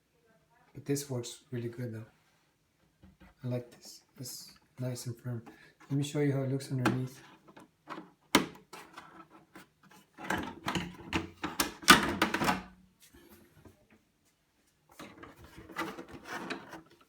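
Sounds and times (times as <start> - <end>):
plastic toy truck body rattling: 6.9 - 12.7, 15.0 - 17.0.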